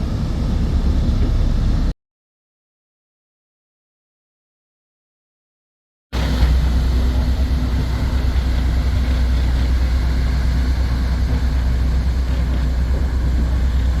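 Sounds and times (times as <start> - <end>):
boat engine drone: 0.0 - 1.9, 6.2 - 14.0
low rumble: 0.0 - 1.9.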